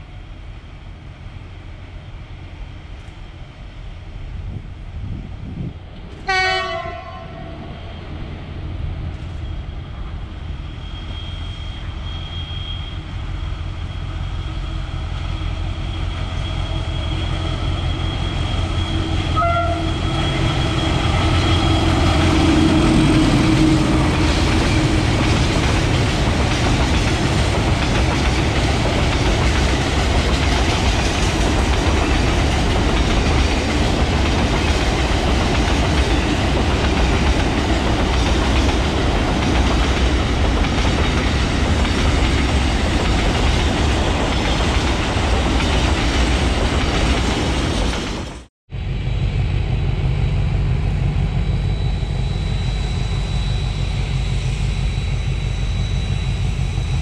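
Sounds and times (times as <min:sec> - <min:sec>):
train wagons rumbling on rails: 0:04.3 - 0:57.0
train horn blast: 0:06.2 - 0:07.7, 0:16.7 - 0:24.9.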